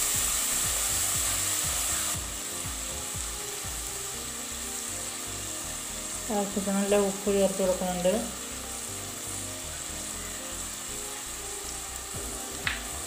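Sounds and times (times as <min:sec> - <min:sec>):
vegetables sizzling in a pot: 0:00.0 - 0:13.0
soft low beat: 0:12.2 - 0:13.0.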